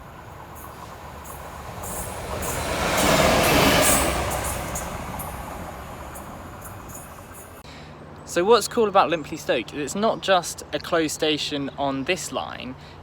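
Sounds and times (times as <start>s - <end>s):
train passing: 0.0s - 7.6s.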